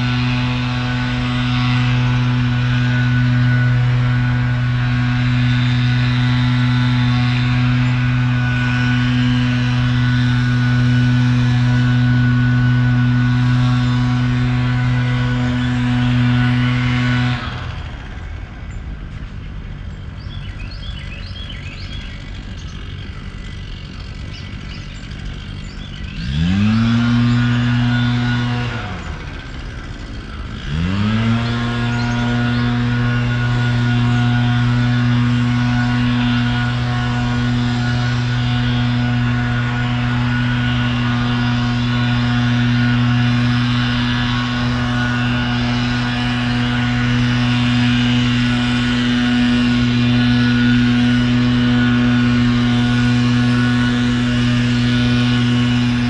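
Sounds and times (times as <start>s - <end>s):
motor hum: 0.0s - 56.0s
motor whine: 0.0s - 56.0s
small birds chirping: 18.6s - 27.7s, 31.6s - 39.3s.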